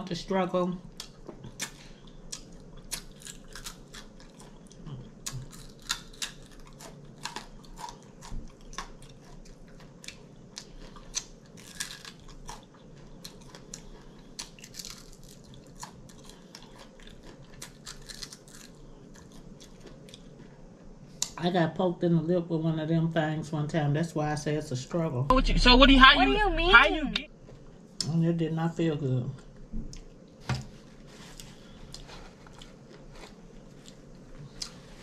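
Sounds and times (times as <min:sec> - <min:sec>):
crunchy chewing and mouth clicks: 0:00.9 - 0:21.4, 0:31.3 - 0:34.9.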